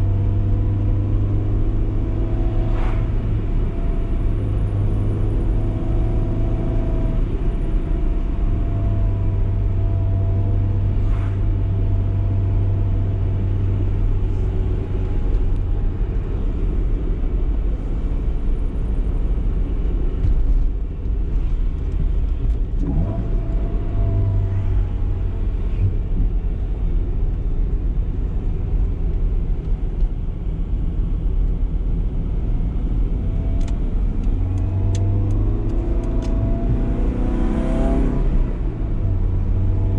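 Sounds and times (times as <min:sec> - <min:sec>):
road and tyre noise: 0:00.0 - 0:39.9
car engine revving: 0:22.7 - 0:25.9, 0:33.4 - 0:39.9.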